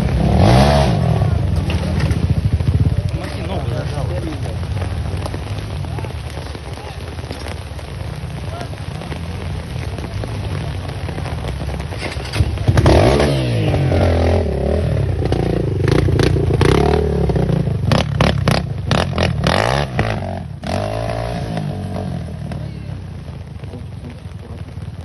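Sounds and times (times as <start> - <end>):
vehicle engine revving past: 0.0 - 3.4, 12.6 - 22.6.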